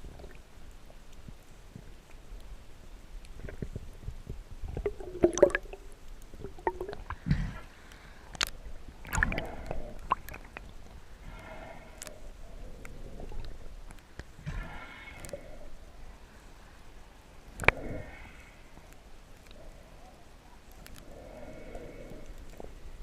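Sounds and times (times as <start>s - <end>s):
water sloshing and gurgling: 3.3s - 16.2s
bubbly bursts: 4.8s - 7.2s.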